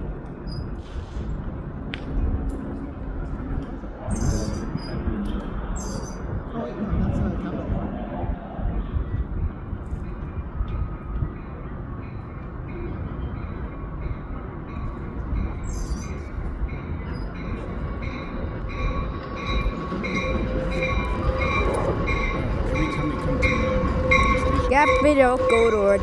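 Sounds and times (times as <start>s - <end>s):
train rumble: 0.0s - 26.0s
wheels or brakes squealing: 15.6s - 16.3s.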